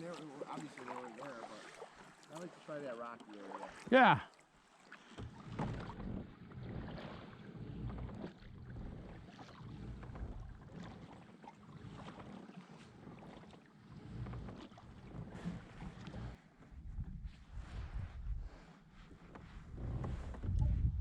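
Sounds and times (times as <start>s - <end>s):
paddle splashing water: 0.0s - 21.0s
wind buffeting microphone: 16.7s - 18.6s, 19.6s - 21.0s.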